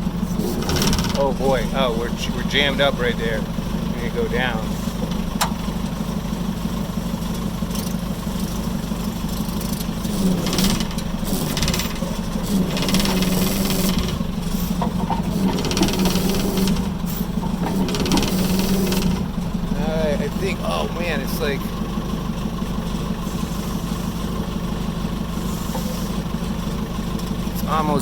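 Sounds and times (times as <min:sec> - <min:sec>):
heavy equipment engine labouring: 0:00.0 - 0:28.0
rattling noise bursts: 0:00.4 - 0:01.8, 0:10.0 - 0:19.4.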